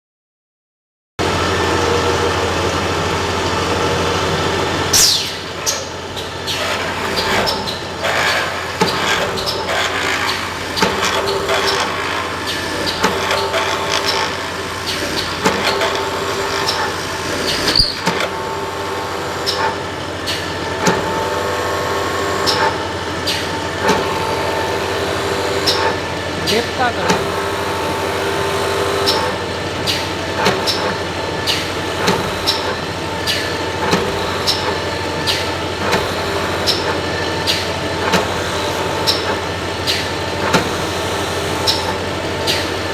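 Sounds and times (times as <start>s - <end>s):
steady mechanical hum: 1.2s - 42.9s
sharp clanks and clicks: 25.6s - 27.3s.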